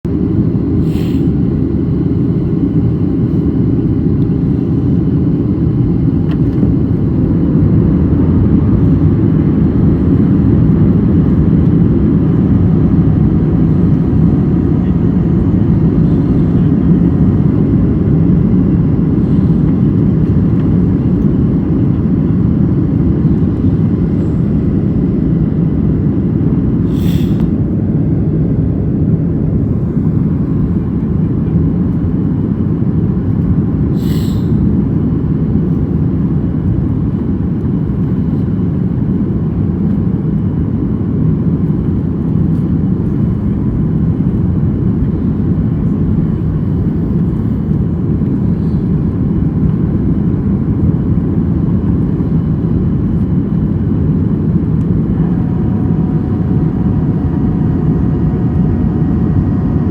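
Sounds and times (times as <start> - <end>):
airliner cabin engine rumble: 0.0 - 59.9
brief hissing: 0.8 - 1.3, 26.9 - 27.5, 34.0 - 34.6.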